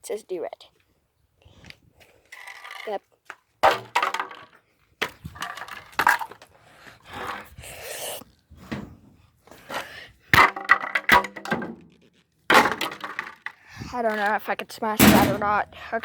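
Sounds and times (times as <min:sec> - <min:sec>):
plastic parts knocking and clattering: 0:02.3 - 0:06.5, 0:10.3 - 0:14.4, 0:15.0 - 0:16.0.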